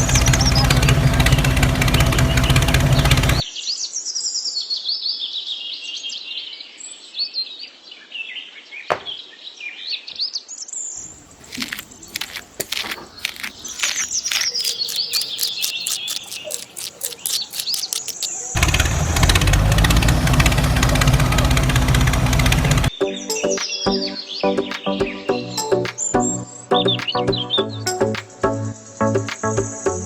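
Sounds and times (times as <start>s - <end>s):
birds chirping: 11.0s - 18.6s
rapid sharp clicks: 11.2s - 18.6s.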